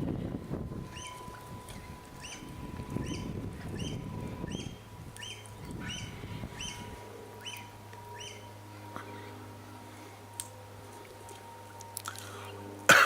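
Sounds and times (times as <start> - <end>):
bird chirping: 0.9 - 8.5.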